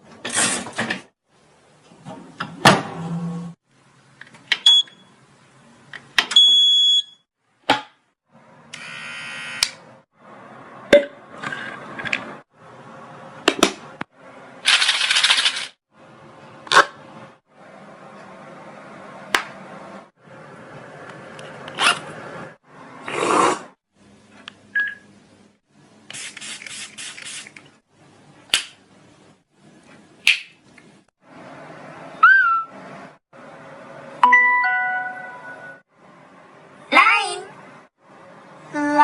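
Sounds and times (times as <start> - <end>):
doorbell-like ding: 34.2 - 35.8.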